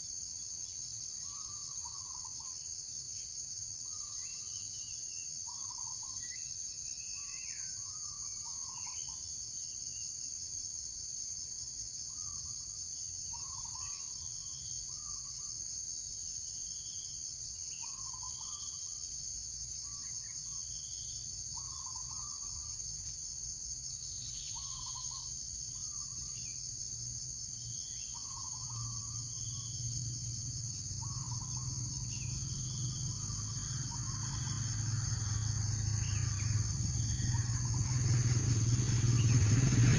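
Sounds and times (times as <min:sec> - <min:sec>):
insects droning: 0:00.0 - 0:39.9
low rumble: 0:34.4 - 0:39.9.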